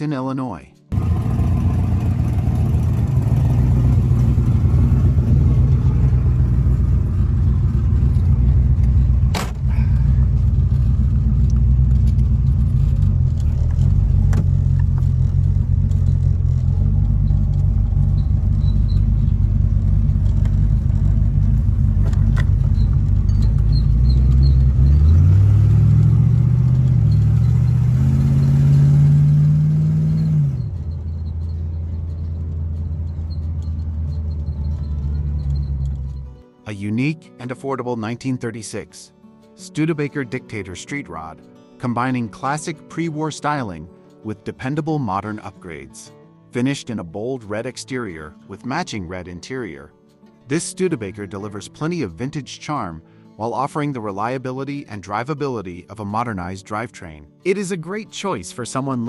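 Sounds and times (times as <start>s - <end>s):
car engine idling and revving: 0.9s - 36.4s.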